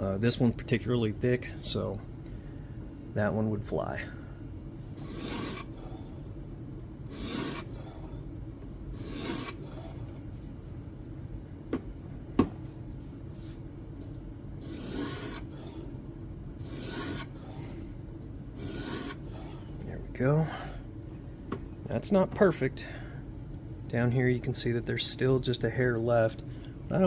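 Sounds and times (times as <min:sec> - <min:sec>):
sharpening stone rasping on blade: 0:05.0 - 0:05.7, 0:07.1 - 0:07.7, 0:09.0 - 0:09.6, 0:14.7 - 0:15.5, 0:16.7 - 0:17.4, 0:18.6 - 0:19.2.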